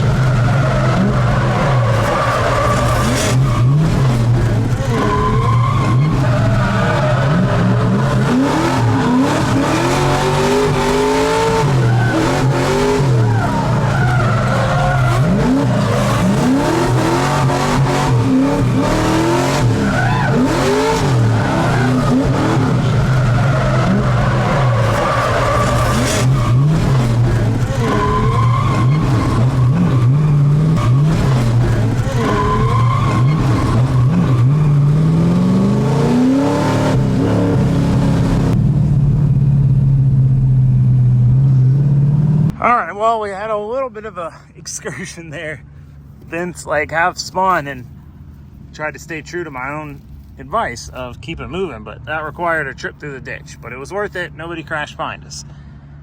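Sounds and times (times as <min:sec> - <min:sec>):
tyres skidding and squealing: 0:00.0 - 0:38.6, 0:41.3 - 0:56.0
car engine revving hard: 0:00.0 - 0:38.7.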